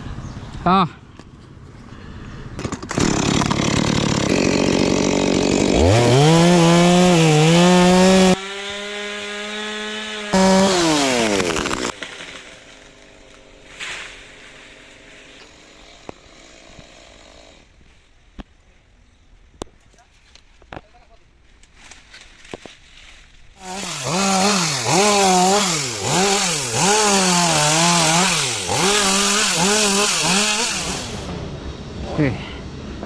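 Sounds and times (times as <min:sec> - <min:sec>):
chainsaw revving: 0:02.8 - 0:12.8, 0:23.6 - 0:31.3.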